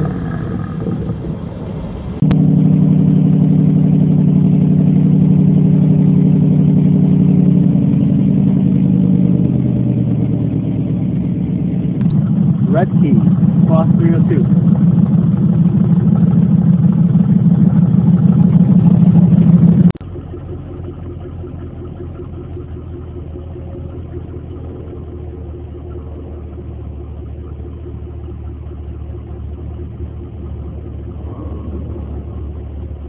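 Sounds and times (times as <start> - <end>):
loud engine idle: 0.0 - 33.0
quieter low-pitched engine idle: 0.0 - 33.0.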